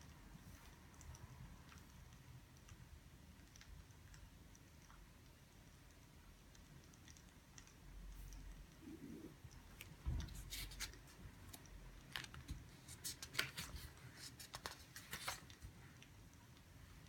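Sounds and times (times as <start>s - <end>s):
paper and stationery rustling: 10.1s - 15.8s.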